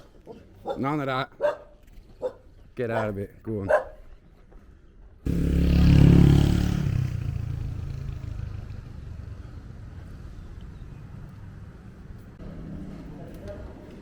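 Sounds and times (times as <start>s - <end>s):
low traffic rumble: 4.7s - 14.0s
vehicle engine passing by: 5.3s - 14.0s.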